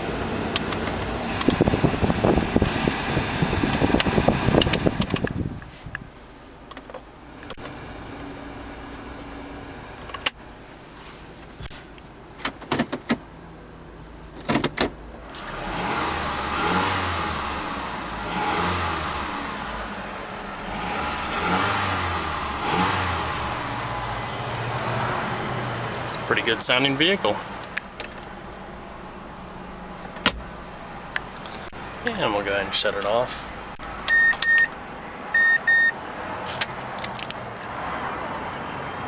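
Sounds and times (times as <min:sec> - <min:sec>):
car engine idling: 0:13.2 - 0:36.0
car engine revving: 0:15.3 - 0:34.1.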